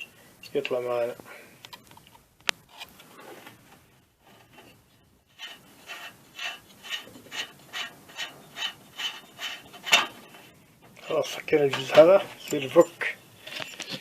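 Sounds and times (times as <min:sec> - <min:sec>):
hand tool rasping strokes: 0:05.3 - 0:10.4.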